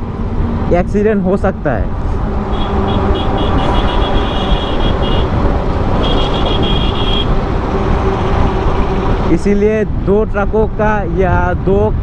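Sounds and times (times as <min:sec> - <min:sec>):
road traffic and wind rumble: 0:00.0 - 0:12.0.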